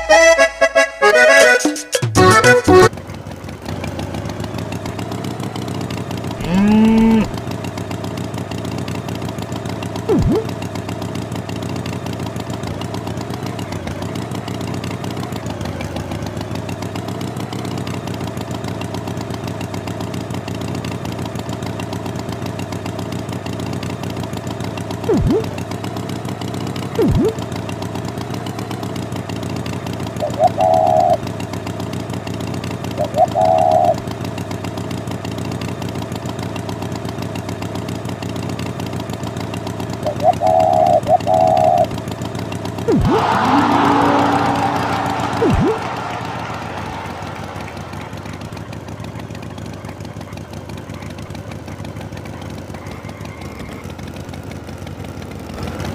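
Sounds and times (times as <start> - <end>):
tractor engine idling: 0.0 - 55.9
short high-pitched toots: 10.1 - 10.5, 25.1 - 25.6, 27.0 - 27.4, 42.9 - 48.5
short rising call: 25.1 - 25.6, 27.0 - 27.4, 42.9 - 49.0.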